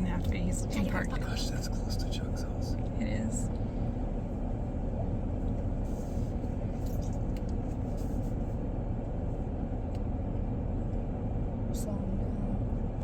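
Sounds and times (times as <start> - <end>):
car engine rumble: 0.0 - 13.0.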